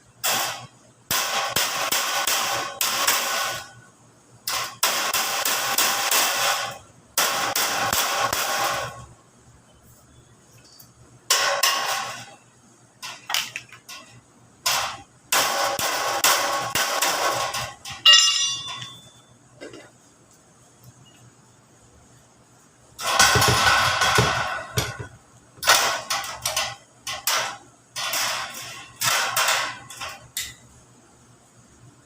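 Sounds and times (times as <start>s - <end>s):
metal sheet scraping and rattling: 13.0s - 19.9s, 23.0s - 25.0s, 25.6s - 30.3s.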